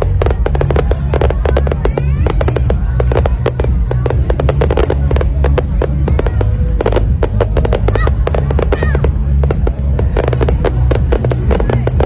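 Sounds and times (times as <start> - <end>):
fireworks bangs and crackles: 0.0 - 12.0
loud music with heavy bass: 0.0 - 12.0.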